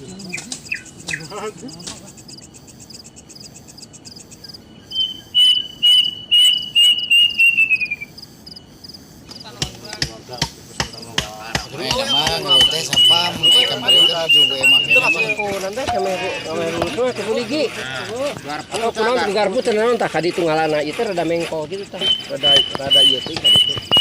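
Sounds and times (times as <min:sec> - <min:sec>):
insects trilling: 0:00.0 - 0:24.0
sharp knocks: 0:09.4 - 0:13.7, 0:22.0 - 0:24.0.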